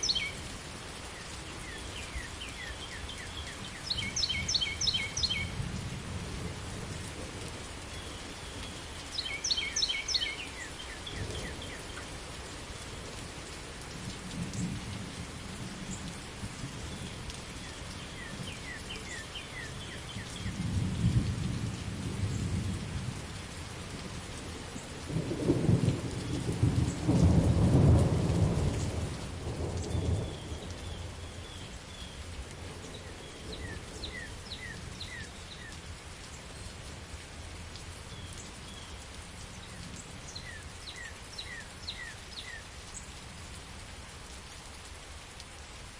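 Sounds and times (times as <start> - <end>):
steady rain falling: 0.0 - 45.9
thunder rumbling: 25.1 - 30.7.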